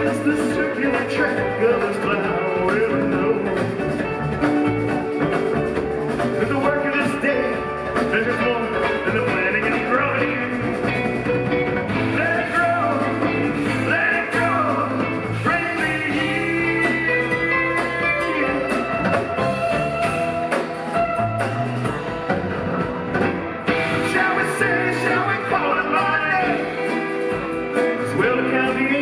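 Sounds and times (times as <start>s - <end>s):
bass: 0.0s - 29.0s
electric lead guitar: 0.0s - 29.0s
keyboards: 0.0s - 29.0s
percussion: 0.0s - 29.0s.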